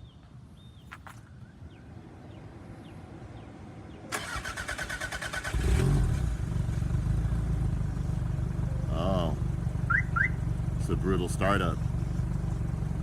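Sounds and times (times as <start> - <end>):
car engine idling: 4.2 - 13.0.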